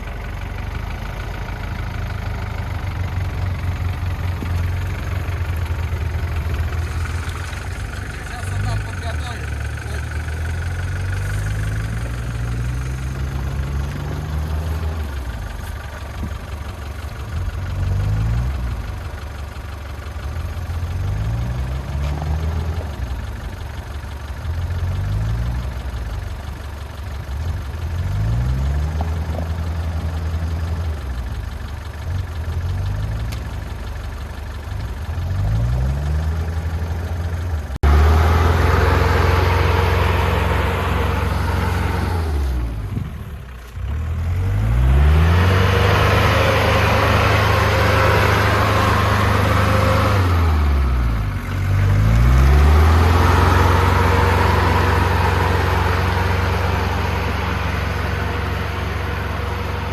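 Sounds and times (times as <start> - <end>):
suv engine revving: 0.0 - 59.9.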